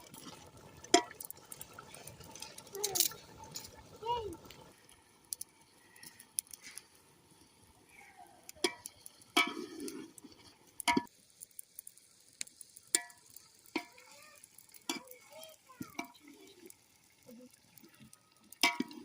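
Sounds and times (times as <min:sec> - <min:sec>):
utensil scraping pan: 0:09.4 - 0:10.2.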